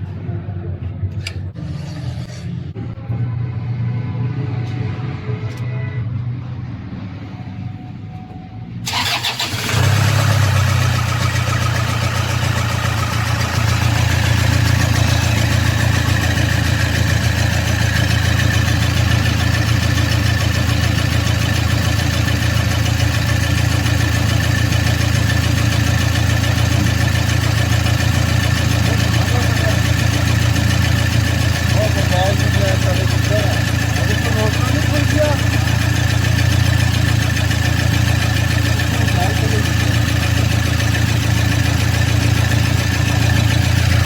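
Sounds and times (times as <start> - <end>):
diesel engine idling: 6.7 - 44.0
diesel engine starting: 8.8 - 44.0.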